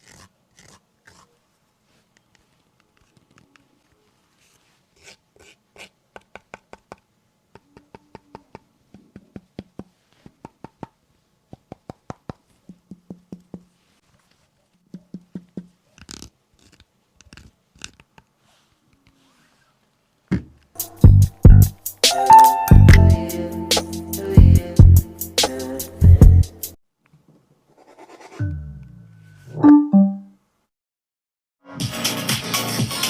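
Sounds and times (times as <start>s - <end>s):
loud music with drums: 20.8s - 26.5s, 31.8s - 33.0s.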